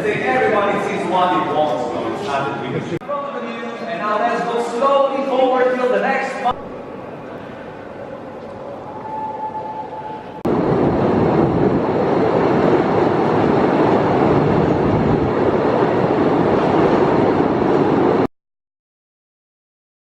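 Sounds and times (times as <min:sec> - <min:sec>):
train rushing rattle: 0:10.4 - 0:18.3.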